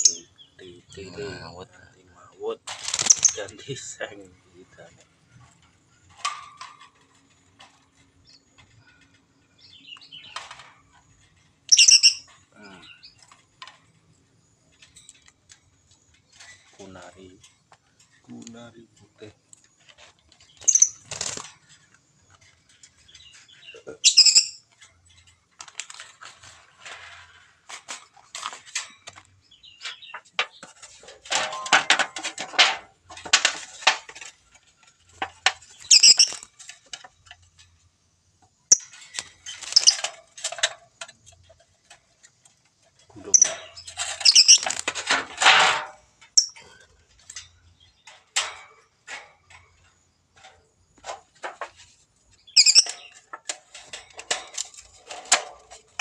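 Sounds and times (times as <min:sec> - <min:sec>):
lovebird shrill chirps: 0:11.7 - 0:12.3, 0:24.0 - 0:24.6, 0:35.9 - 0:36.4, 0:44.2 - 0:44.7, 0:52.5 - 0:53.1
rustling: 0:24.6 - 0:56.0.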